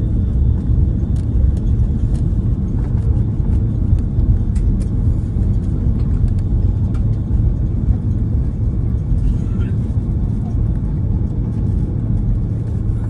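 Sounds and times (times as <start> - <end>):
airplane cabin rumble: 0.0 - 13.0
light rattling clicks: 0.6 - 7.4.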